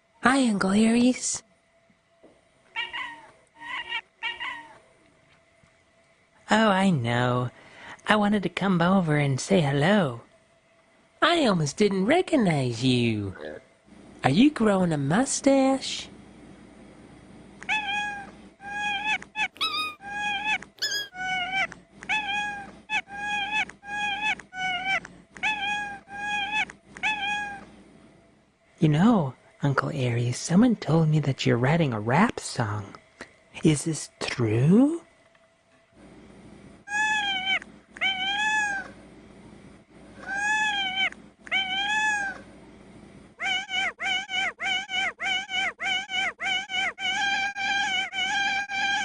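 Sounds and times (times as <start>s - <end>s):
cat meowing: 17.7s - 27.6s, 36.9s - 38.9s, 40.2s - 42.4s, 43.4s - 49.0s.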